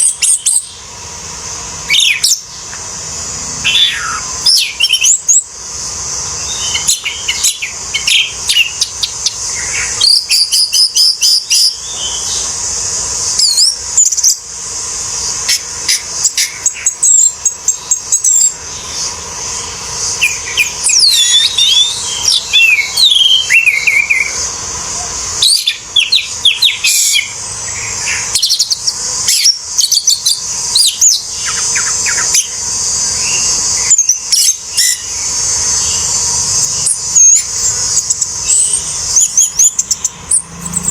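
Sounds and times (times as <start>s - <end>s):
steady high hiss: 0.0s - 40.9s
thrush singing: 0.0s - 40.9s.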